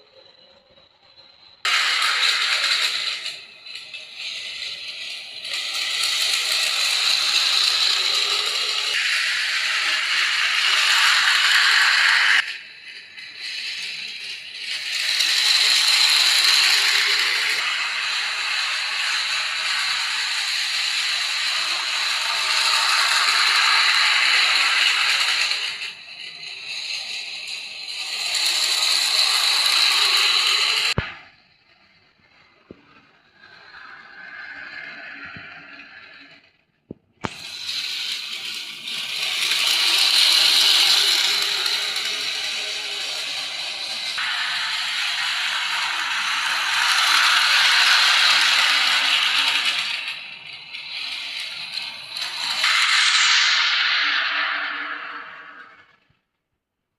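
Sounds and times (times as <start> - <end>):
toy train motor whirring: 0.0 - 56.2.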